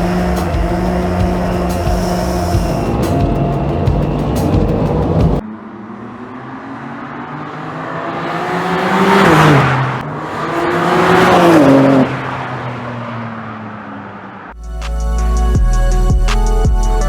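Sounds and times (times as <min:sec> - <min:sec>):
car engine accelerating hard: 0:00.0 - 0:14.5.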